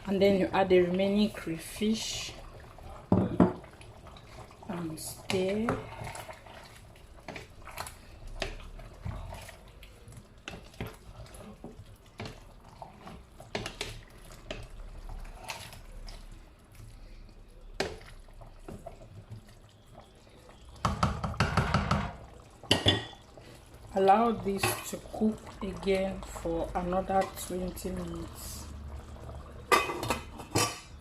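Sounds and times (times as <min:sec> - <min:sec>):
thick stew sloshing: 0:00.0 - 0:20.8
spoon knocking against pot: 0:20.8 - 0:23.2.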